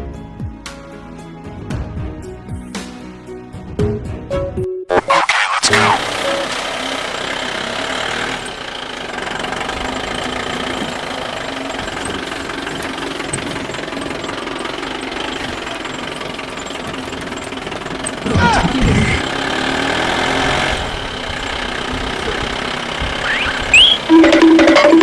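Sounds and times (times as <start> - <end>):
toy vehicle motor rattling: 5.8 - 25.0.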